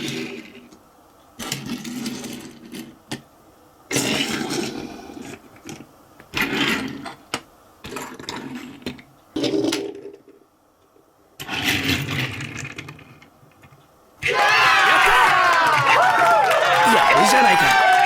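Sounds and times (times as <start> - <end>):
toys scraping and rattling: 4.0 - 7.2, 11.4 - 13.3.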